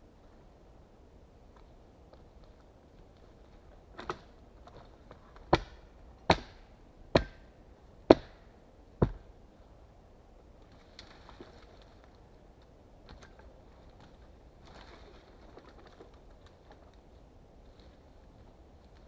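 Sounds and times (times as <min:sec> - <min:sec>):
axe chopping wood: 0:05.5 - 0:07.5, 0:08.1 - 0:09.3.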